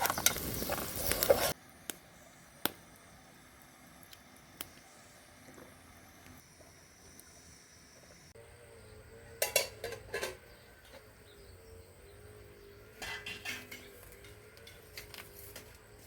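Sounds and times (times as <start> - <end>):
dishes and utensils clattering: 9.4 - 11.0, 12.9 - 15.1.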